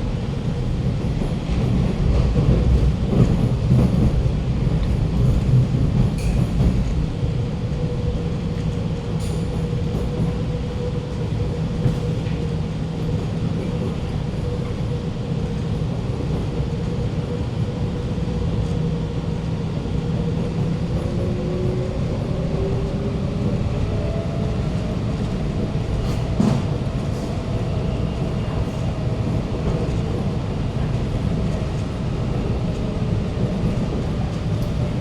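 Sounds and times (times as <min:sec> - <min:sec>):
train wheels rumbling: 0:00.0 - 0:35.0.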